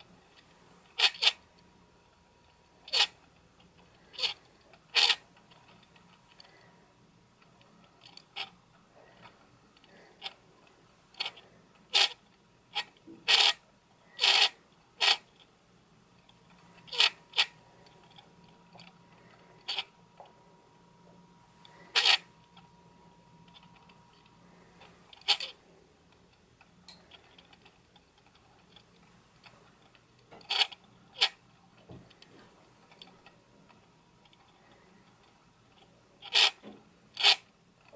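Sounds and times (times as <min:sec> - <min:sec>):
lens stabiliser grinding: 0:00.0 - 0:01.6, 0:02.7 - 0:06.6, 0:11.1 - 0:13.6, 0:14.2 - 0:15.5, 0:16.4 - 0:19.9, 0:21.6 - 0:22.7, 0:23.4 - 0:25.6, 0:26.2 - 0:31.4, 0:34.2 - 0:37.9.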